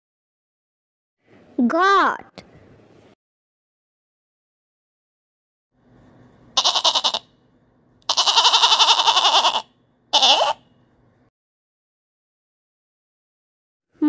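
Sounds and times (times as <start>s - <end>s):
goat bleating: 6.6s - 7.3s, 8.0s - 10.6s.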